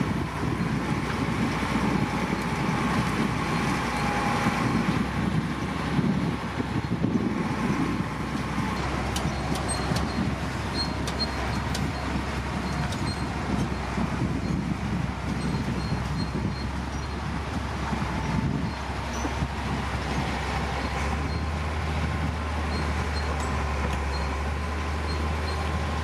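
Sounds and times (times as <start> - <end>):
heavy diesel machinery rumbling: 0.0 - 26.0.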